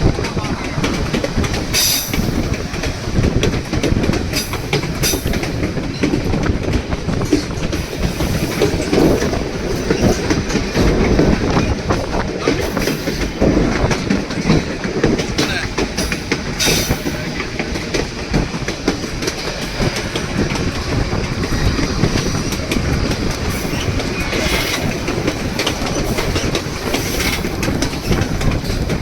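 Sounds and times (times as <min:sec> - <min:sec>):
train rumbling along track: 0:00.0 - 0:29.0
wheels clacking over rail joints: 0:00.0 - 0:29.0.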